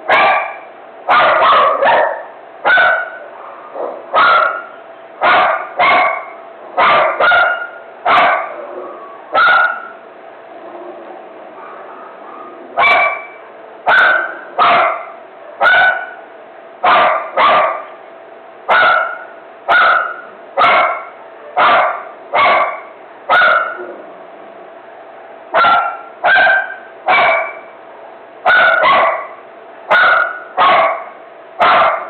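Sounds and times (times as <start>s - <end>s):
dog barking: 0.1s - 10.0s, 11.6s - 16.2s, 16.8s - 18.0s, 18.7s - 23.9s, 25.5s - 27.7s, 28.4s - 32.0s.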